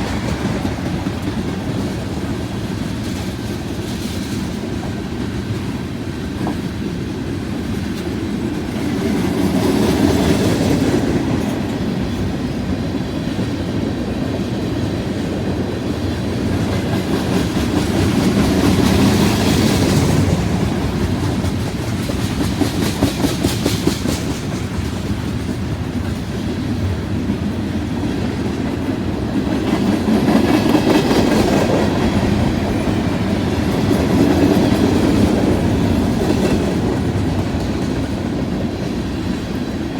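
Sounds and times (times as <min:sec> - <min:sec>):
freight train rolling past: 0:00.0 - 0:39.9
wheels clacking over rail joints: 0:13.7 - 0:39.9.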